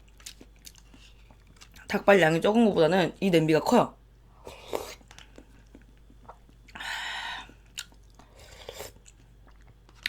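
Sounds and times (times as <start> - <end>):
close-miked chewing: 0.1 - 1.9.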